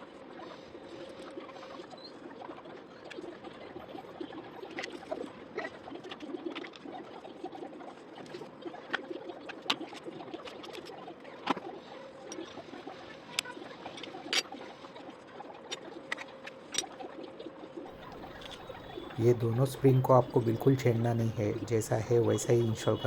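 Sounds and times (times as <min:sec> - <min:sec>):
steady background hum: 0:18.0 - 0:23.0.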